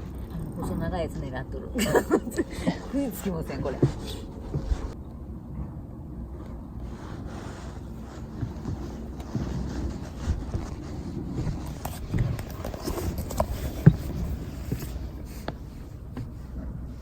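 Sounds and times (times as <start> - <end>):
light knocks and scrapes: 2.7 - 5.0, 6.4 - 17.0.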